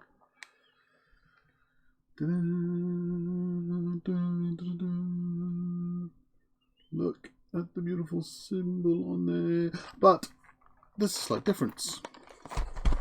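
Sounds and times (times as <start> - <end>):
man humming low note: 2.2 - 6.1.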